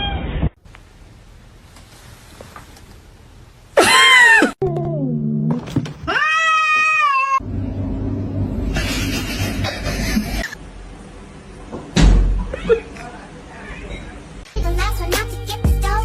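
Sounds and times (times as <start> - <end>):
cats meowing: 6.0 - 7.4.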